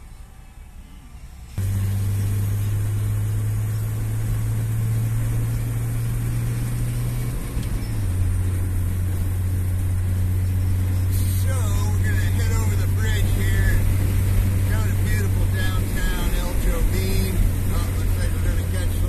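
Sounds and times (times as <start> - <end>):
road and wind noise: 0.0 - 19.0
vehicle engine running: 0.0 - 19.0.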